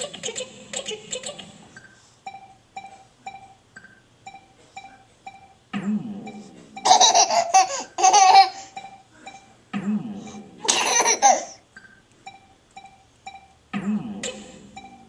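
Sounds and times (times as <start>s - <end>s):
toddler laughing: 6.9s - 8.7s, 10.6s - 11.6s.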